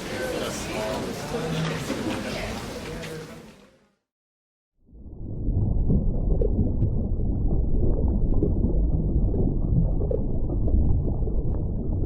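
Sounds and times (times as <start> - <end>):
low steady rumble: 5.0 - 12.0.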